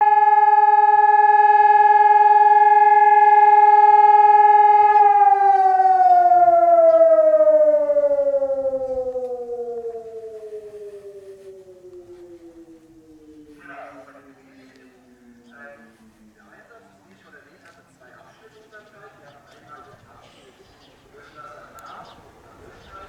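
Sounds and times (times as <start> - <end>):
civil defence siren winding down: 0.0 - 16.7.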